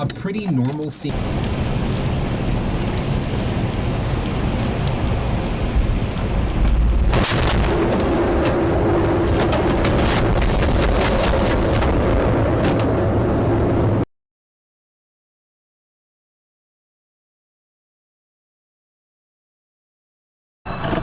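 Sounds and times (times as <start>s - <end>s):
heavy rain: 0.9s - 14.0s.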